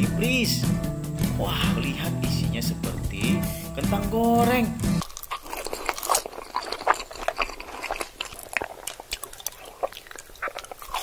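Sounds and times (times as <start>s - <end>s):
chewing and mouth sounds: 4.9s - 11.0s
crunching fries: 5.0s - 11.0s.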